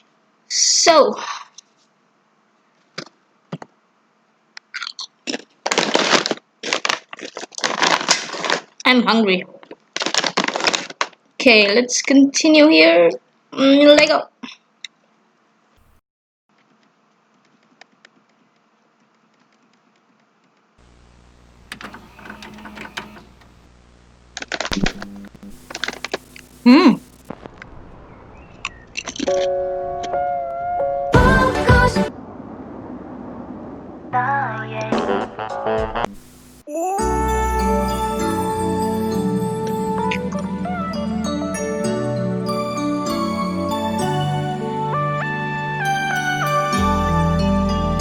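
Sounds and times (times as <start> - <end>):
close-up crunching and crackling: 4.7 - 8.9, 9.6 - 11.2
low hum: 20.8 - 34.8.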